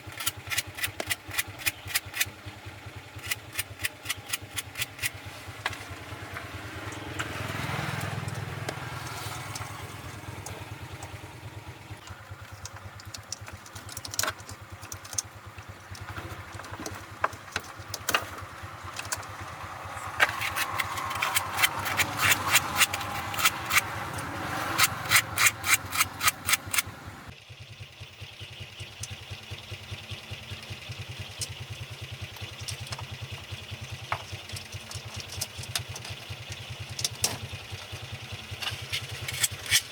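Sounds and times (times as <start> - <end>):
engine idling: 0.0 - 39.9
metallic taps and clicks: 3.2 - 5.8.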